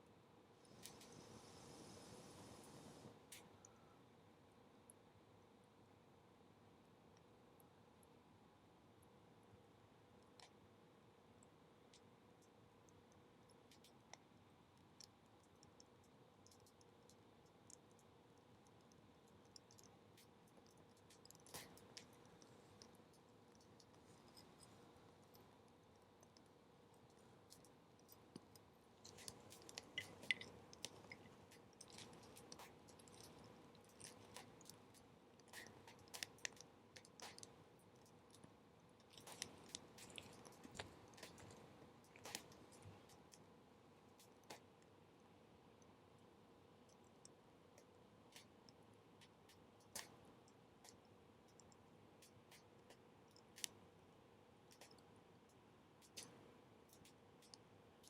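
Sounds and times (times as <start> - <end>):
wood fire crackling: 28.1 - 37.5.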